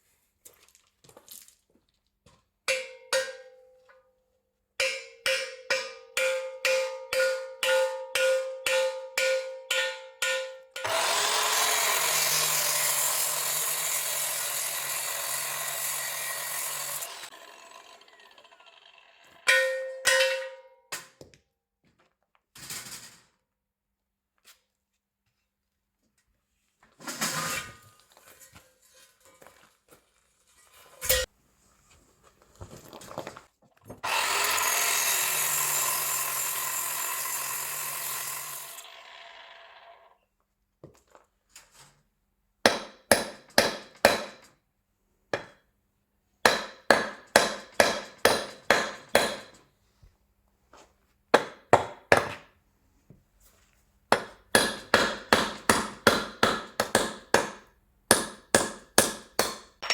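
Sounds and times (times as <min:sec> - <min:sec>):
hammer striking metal: 0:02.7 - 0:03.6, 0:04.8 - 0:11.7, 0:19.4 - 0:21.1, 0:31.1 - 0:31.3, 0:42.7 - 0:44.4, 0:46.4 - 0:49.6, 0:54.1 - 0:59.9
tool whirring: 0:10.8 - 0:19.5, 0:34.0 - 0:40.2.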